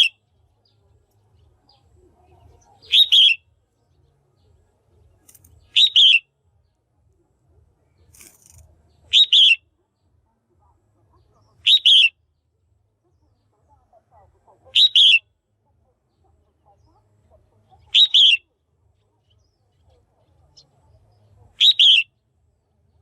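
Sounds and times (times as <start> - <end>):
bulbul calling: 0.0 - 0.2, 1.6 - 3.6, 5.2 - 6.3, 8.1 - 9.7, 11.4 - 12.2, 14.5 - 15.3, 16.2 - 22.2.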